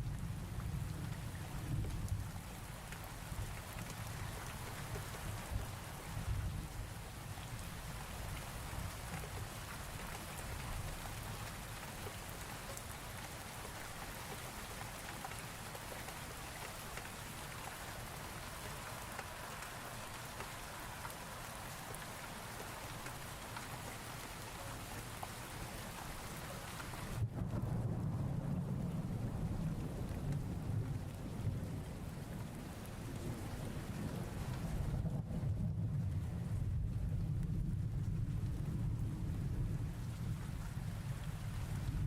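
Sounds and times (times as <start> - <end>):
steady rain: 0.0 - 42.0
thunder rumbling: 27.1 - 42.0.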